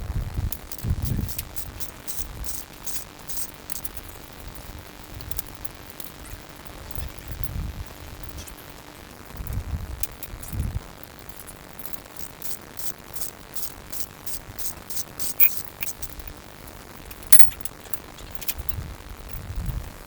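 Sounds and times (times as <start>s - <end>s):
light metallic clicks and clinks: 11.0s - 19.5s.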